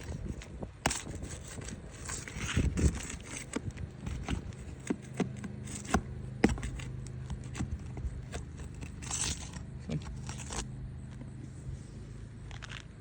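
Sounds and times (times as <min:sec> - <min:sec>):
tools scraping roof shingles: 0:00.0 - 0:11.4.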